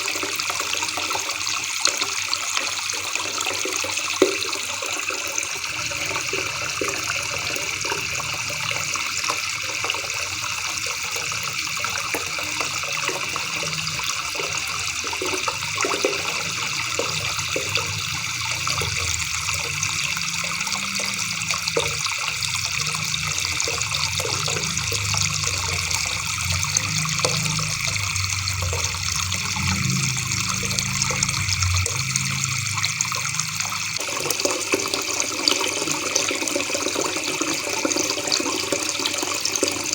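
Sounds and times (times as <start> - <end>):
low rumble: 23.5 - 34.0.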